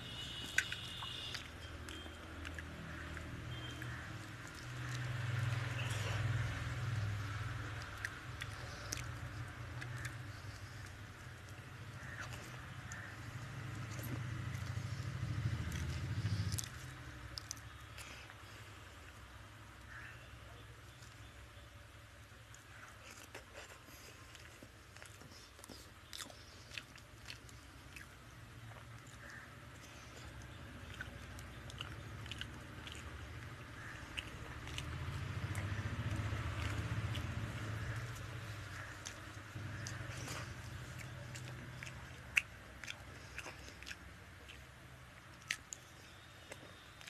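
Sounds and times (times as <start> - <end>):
wet chewing and lip-smacking: 0.1 - 20.0, 20.7 - 47.0
fingers squishing food: 22.4 - 47.0.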